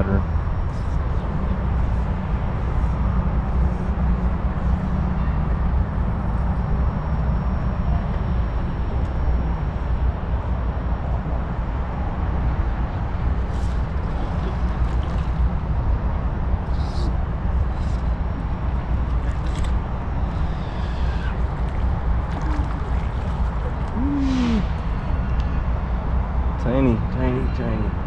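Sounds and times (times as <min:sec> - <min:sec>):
creek water running: 0:13.7 - 0:15.7, 0:17.6 - 0:24.9.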